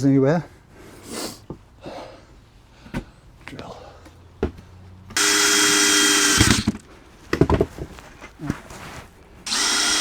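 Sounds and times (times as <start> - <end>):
power drill driving screws into wood: 5.2 - 6.8, 9.5 - 10.0.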